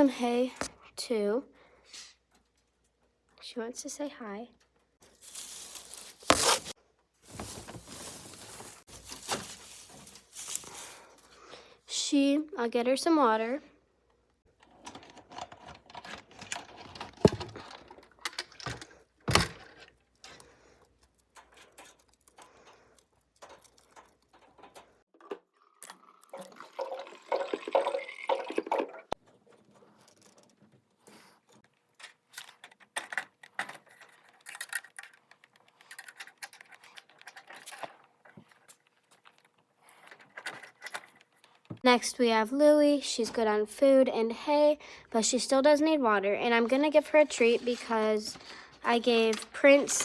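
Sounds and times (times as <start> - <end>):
water pouring into bottle: 25.5 - 29.2.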